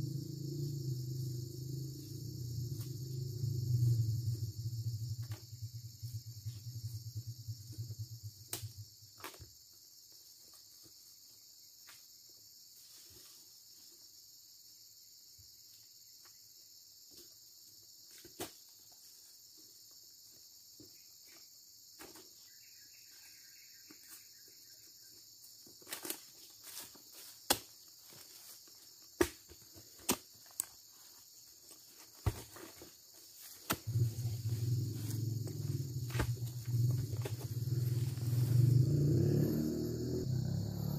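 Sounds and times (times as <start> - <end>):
insects chirring: 0.0 - 40.9
small engine humming: 33.9 - 40.9.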